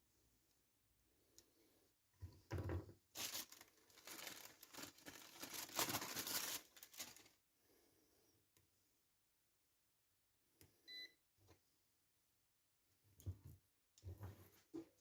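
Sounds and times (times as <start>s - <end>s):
packaging crinkling and tearing: 3.1s - 7.4s.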